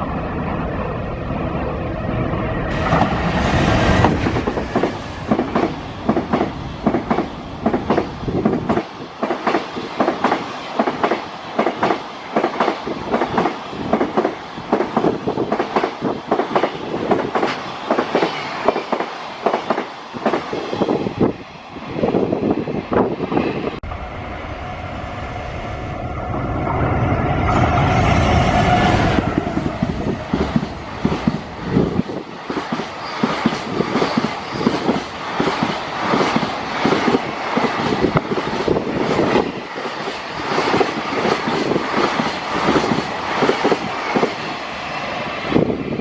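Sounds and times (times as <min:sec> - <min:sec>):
locomotive rumbling: 0:23.7 - 0:32.3.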